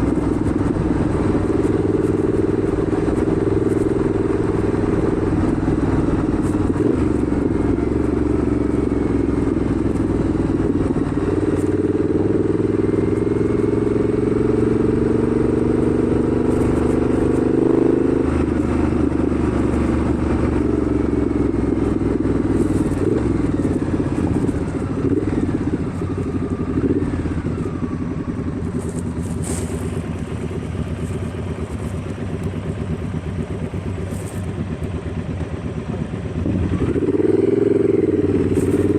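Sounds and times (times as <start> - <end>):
wind noise: 0.0 - 12.6
motorcycle engine running: 0.0 - 38.9.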